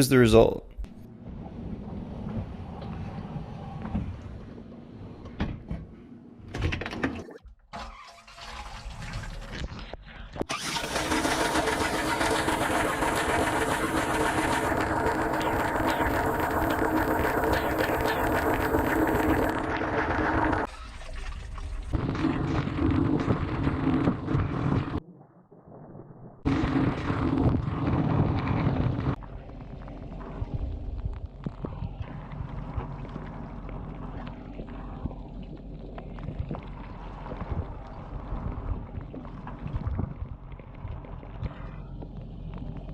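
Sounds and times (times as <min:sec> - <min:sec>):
low hum: 0:11.3 - 0:42.9.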